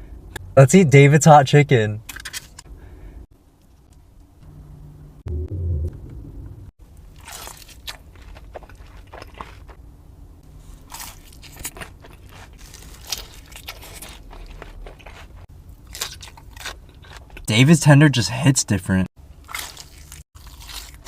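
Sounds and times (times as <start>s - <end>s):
low bump: 4.4s - 6.8s
crunchy bites and chewing: 7.0s - 9.8s, 10.6s - 17.5s, 19.3s - 21.0s.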